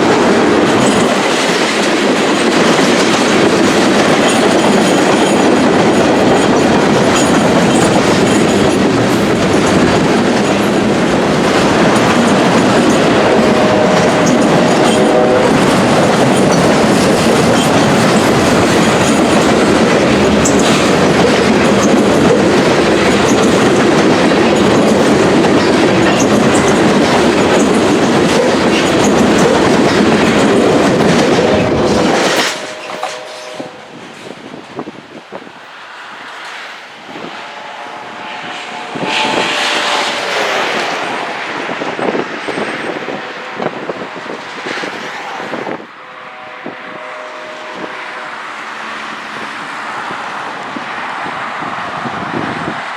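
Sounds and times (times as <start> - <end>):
wheels clacking over rail joints: 0.0 - 34.9, 37.5 - 46.2
freight train rumbling past: 0.0 - 52.9.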